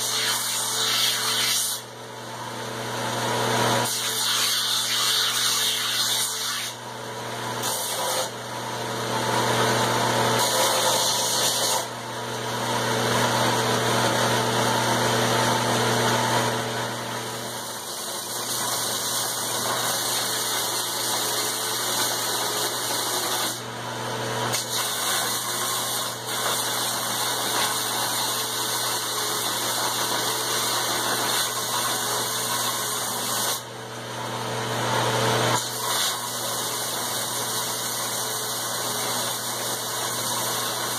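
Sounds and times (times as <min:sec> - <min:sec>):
steel being ground: 0:00.0 - 0:01.9, 0:03.6 - 0:06.8, 0:07.6 - 0:08.4, 0:10.2 - 0:12.0, 0:17.2 - 0:23.6, 0:24.5 - 0:33.6, 0:35.6 - 0:40.9
electric grinder humming: 0:00.0 - 0:40.9.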